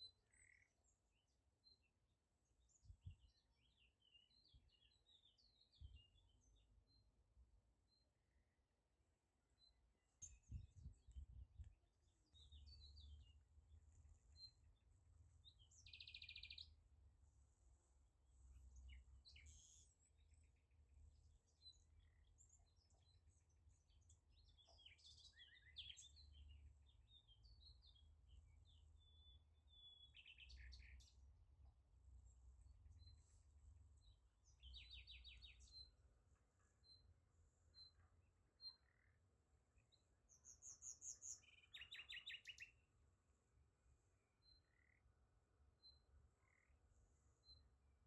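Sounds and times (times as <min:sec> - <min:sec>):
bird chirps and trills: 0:12.1 - 0:16.8, 0:18.4 - 0:31.3, 0:32.9 - 0:36.1, 0:39.8 - 0:42.9.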